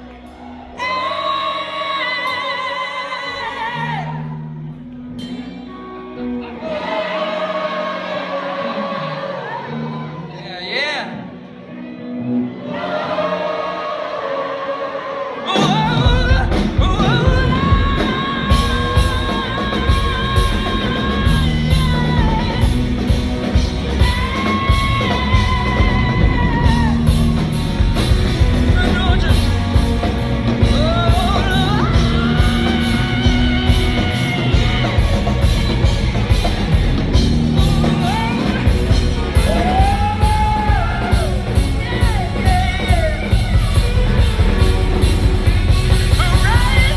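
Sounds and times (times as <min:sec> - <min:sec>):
drums: 0:00.0 - 0:06.0, 0:15.3 - 0:46.9
lead vocalist singing long notes: 0:12.6 - 0:44.4
live rock band playing: 0:15.5 - 0:46.9.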